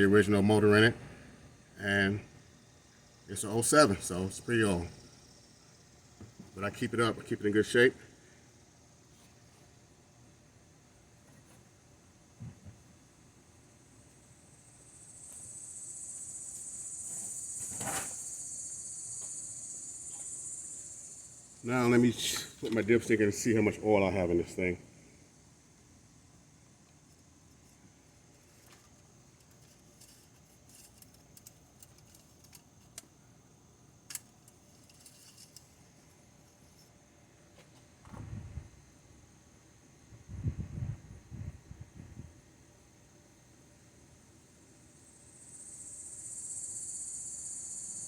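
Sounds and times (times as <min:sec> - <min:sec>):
insects trilling: 0:00.0 - 0:10.3, 0:13.9 - 0:37.0, 0:44.7 - 0:48.0.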